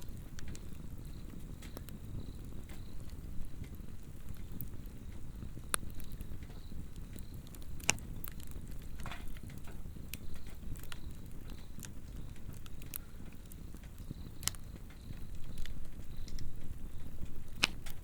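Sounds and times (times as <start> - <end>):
fire crackling and popping: 0.0 - 18.0
insects chirping: 0.0 - 18.0.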